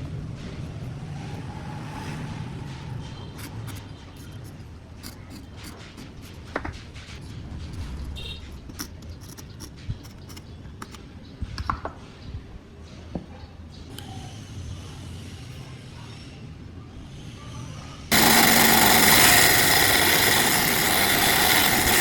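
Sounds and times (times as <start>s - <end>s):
taps and clicks of hand tools: 8.5s - 11.0s, 11.6s - 12.0s.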